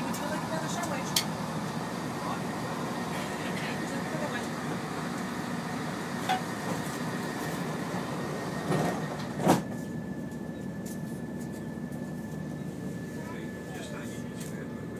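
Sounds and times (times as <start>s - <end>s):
train engine hum: 0.0s - 14.9s.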